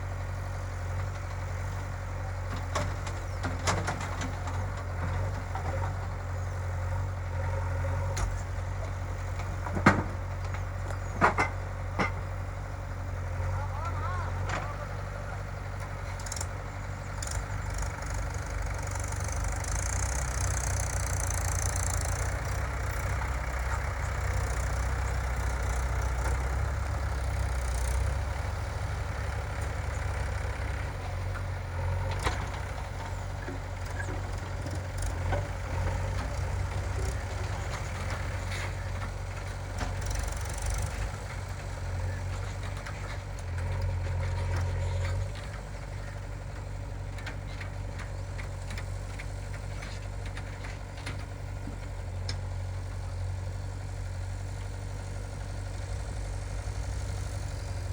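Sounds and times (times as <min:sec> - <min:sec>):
diesel engine running: 0:00.0 - 0:57.9
sharp engine knocks: 0:09.4 - 0:12.4.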